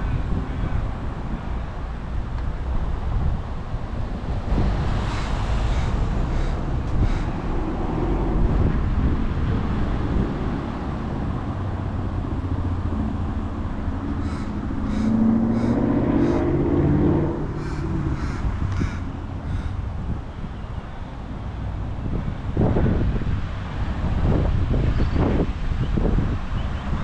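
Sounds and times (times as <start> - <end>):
vehicle passing: 0.0 - 24.9
wind rushing over microphone: 0.0 - 27.0
crow cawing: 5.1 - 7.4, 14.1 - 16.6, 17.6 - 19.8.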